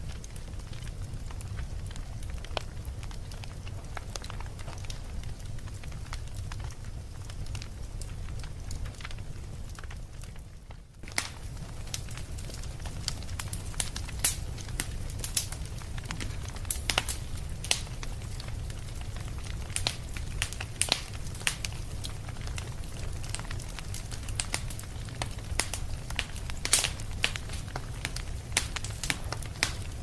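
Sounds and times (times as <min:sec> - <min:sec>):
fire crackling and popping: 0:00.0 - 0:30.0
low fire rumble: 0:00.0 - 0:30.0.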